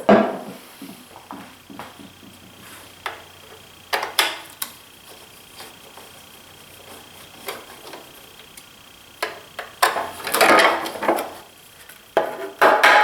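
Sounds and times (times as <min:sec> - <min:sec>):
scraping clatter of parts: 0:09.6 - 0:13.0.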